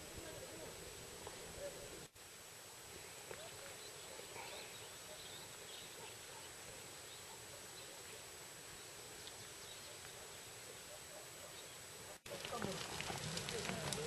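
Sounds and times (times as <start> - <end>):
low forest hiss: 0.0 - 14.0
faint bird chirps: 3.0 - 12.2.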